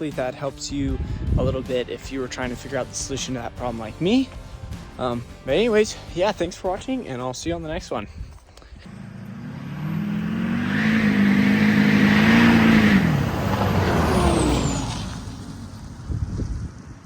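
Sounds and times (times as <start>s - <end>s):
motor vehicle passing by: 8.9s - 17.0s.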